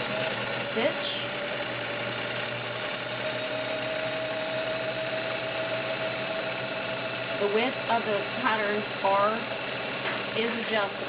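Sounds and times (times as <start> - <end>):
sewing machine running: 0.0 - 11.0.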